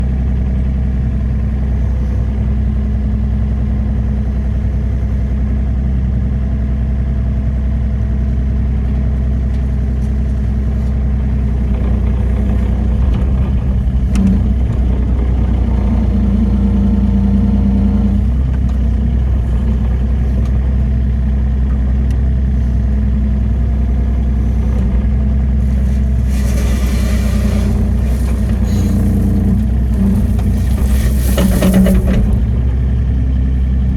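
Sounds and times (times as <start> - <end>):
excavator diesel engine running: 0.0 - 33.9
hissing scraping noise: 25.6 - 32.6.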